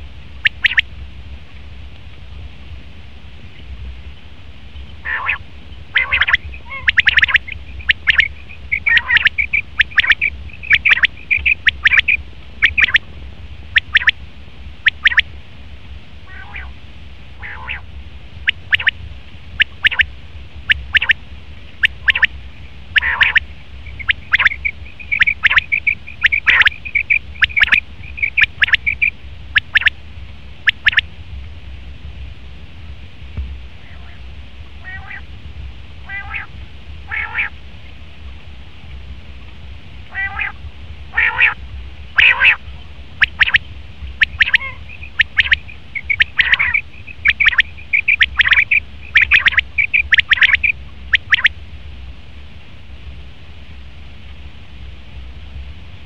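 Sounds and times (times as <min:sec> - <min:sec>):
quail calling: 0:00.4 - 0:00.9, 0:05.0 - 0:13.0, 0:13.8 - 0:14.2, 0:14.8 - 0:15.3, 0:16.3 - 0:16.8, 0:17.4 - 0:17.9, 0:18.5 - 0:19.0, 0:19.6 - 0:20.1, 0:20.7 - 0:21.2, 0:21.8 - 0:22.3, 0:22.9 - 0:29.9, 0:30.6 - 0:31.0, 0:34.8 - 0:35.3, 0:36.0 - 0:36.5, 0:37.1 - 0:37.6, 0:40.1 - 0:51.5
rapid chattering notes: 0:00.4 - 0:00.9, 0:06.0 - 0:13.0, 0:20.7 - 0:21.2, 0:22.9 - 0:29.9, 0:43.2 - 0:51.5.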